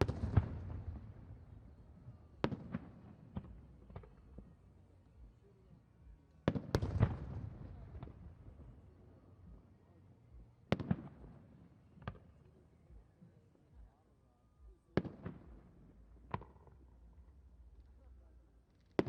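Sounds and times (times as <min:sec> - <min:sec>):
fireworks bangs: 0:00.0 - 0:01.4.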